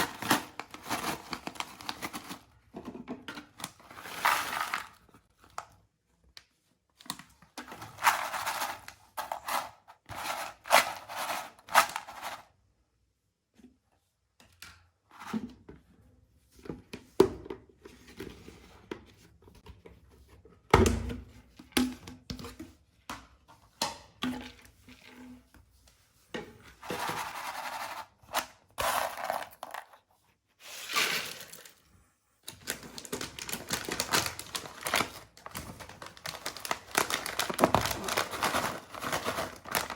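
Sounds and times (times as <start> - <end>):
plastic packets crinkling and tearing: 0.0 - 2.4, 32.5 - 39.9.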